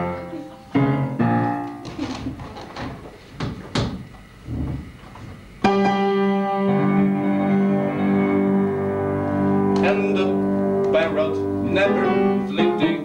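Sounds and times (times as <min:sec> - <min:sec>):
soft knocks: 0:01.8 - 0:05.4
loud sustained instrumental chord: 0:05.7 - 0:13.0.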